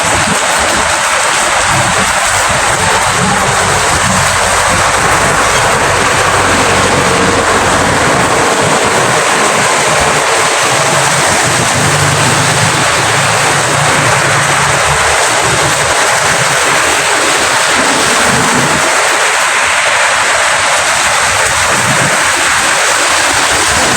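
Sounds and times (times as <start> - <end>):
steady rain: 0.0 - 23.9
low rumble: 1.6 - 16.5.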